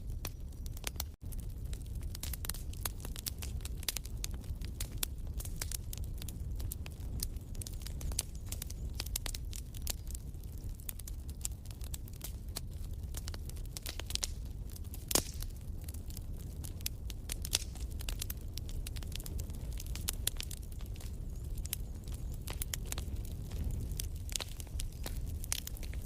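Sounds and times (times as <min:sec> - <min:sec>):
low fire rumble: 0:00.0 - 0:26.0
wood fire crackling: 0:00.0 - 0:26.0
sharp pop of fire: 0:15.1 - 0:15.5.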